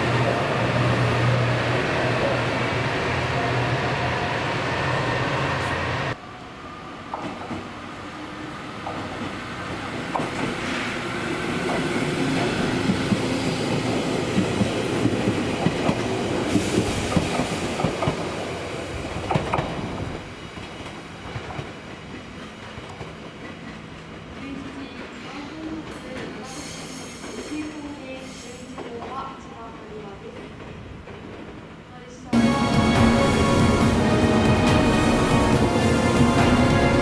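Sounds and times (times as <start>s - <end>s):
electric train passing: 0.0s - 28.6s, 30.8s - 37.0s
diesel railcar engine: 32.3s - 37.0s.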